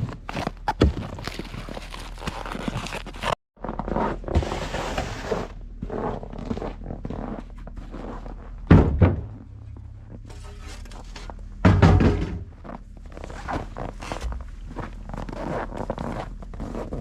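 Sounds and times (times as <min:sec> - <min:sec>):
faint low hum: 0:03.6 - 0:17.0
heavy thuds: 0:08.6 - 0:12.8.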